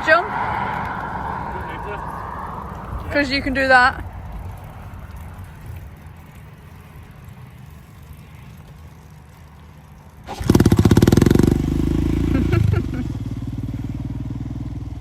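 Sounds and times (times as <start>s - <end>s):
low rumble: 0.0s - 8.2s
motorcycle engine starting and running: 3.1s - 15.0s.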